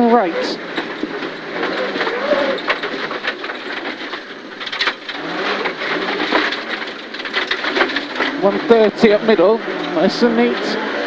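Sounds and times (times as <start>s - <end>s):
gravel rattling against car underside: 0.0s - 11.0s
rally car engine from inside cabin: 4.7s - 11.0s.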